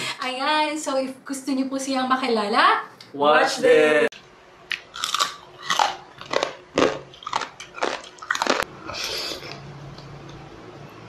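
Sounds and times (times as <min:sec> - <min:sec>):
person chewing crisp food: 0:04.7 - 0:10.4.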